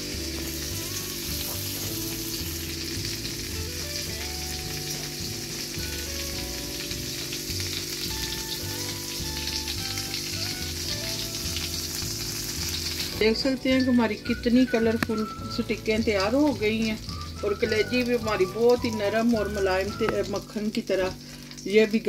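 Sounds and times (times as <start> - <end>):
skewers sizzling on griddle: 0.0 - 22.0.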